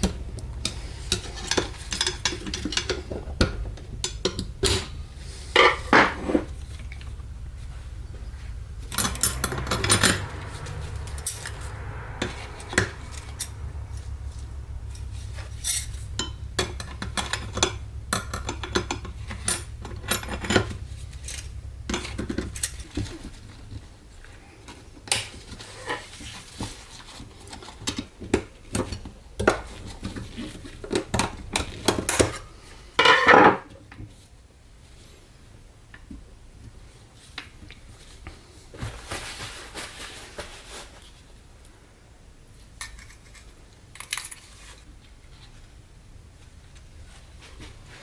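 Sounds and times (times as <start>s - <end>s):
metallic rattle: 0.0s - 23.8s
low steady hum: 0.0s - 39.6s.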